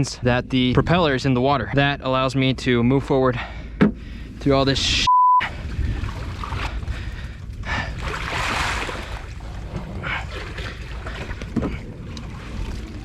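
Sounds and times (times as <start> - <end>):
steady low rumble: 0.0 - 13.0
water sloshing and splashing: 5.4 - 13.0.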